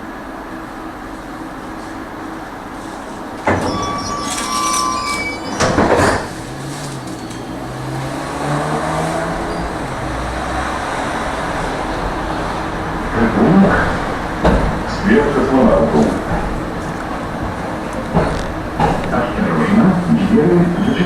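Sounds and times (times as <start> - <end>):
tram rumbling on rails: 0.0 - 21.0
high metallic squeal: 3.5 - 10.2.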